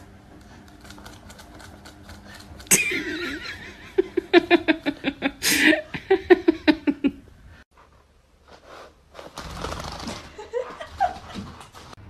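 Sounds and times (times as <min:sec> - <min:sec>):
person laughing: 0:02.7 - 0:07.2, 0:10.3 - 0:11.5.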